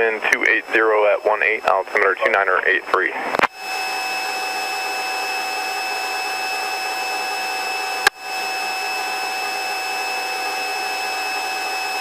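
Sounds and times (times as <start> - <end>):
whining tones: 3.5 - 12.0.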